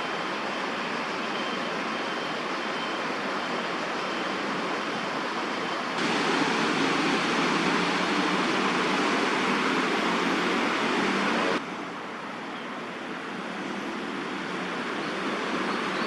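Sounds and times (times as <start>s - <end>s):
outdoor background hiss: 6.0s - 15.9s.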